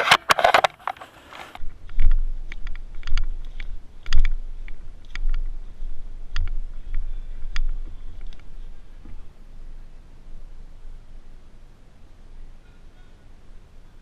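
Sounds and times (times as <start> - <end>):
low rumble: 1.6 - 12.6.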